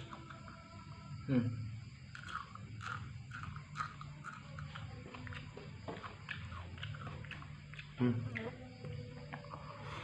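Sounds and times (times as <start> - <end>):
person chewing: 2.1 - 10.0.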